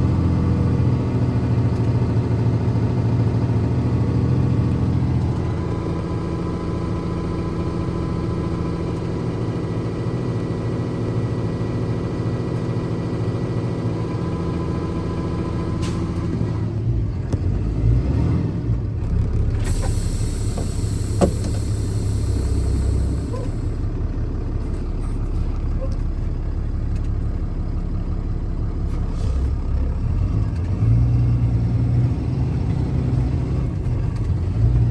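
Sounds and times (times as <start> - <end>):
truck engine running: 0.0 - 34.9
hiss: 19.7 - 23.7.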